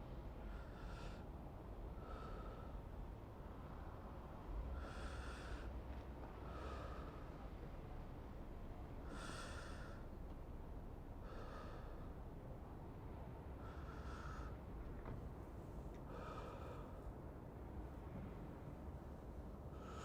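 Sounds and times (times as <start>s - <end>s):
low city rumble: 0.0s - 20.0s
man breathing close to microphone: 4.4s - 7.5s, 9.0s - 10.2s, 11.2s - 12.4s, 13.5s - 14.8s, 16.0s - 17.4s, 19.7s - 20.0s.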